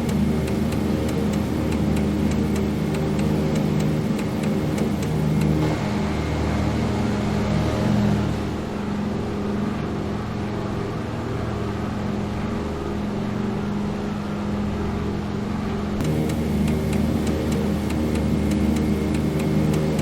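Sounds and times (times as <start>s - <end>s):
twin piston engines droning: 0.0s - 20.0s.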